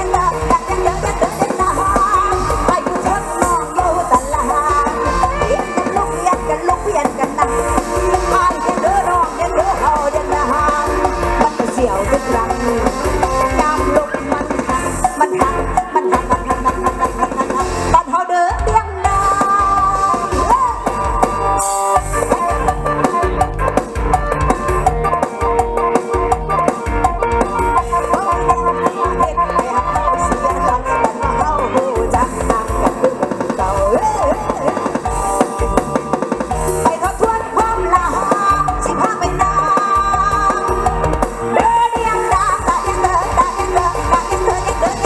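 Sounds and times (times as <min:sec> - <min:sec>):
band music over sound system: 0:00.0 - 0:45.0
drum kit beat: 0:00.0 - 0:45.0.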